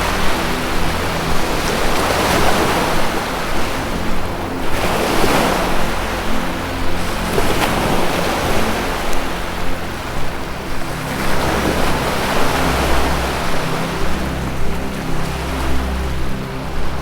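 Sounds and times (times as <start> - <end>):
low music drone: 0.0 - 17.0
ocean surf washing in: 0.0 - 17.0.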